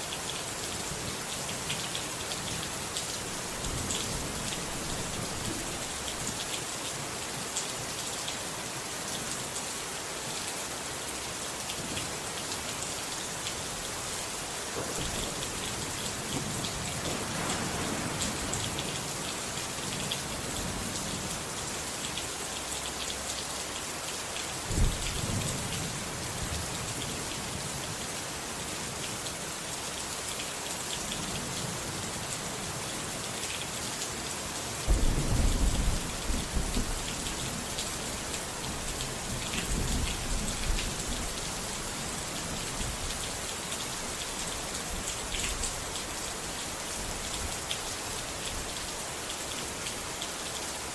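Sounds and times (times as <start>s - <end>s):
steady rain: 0.0s - 50.9s
thunder rumbling: 14.9s - 20.8s, 34.9s - 38.8s.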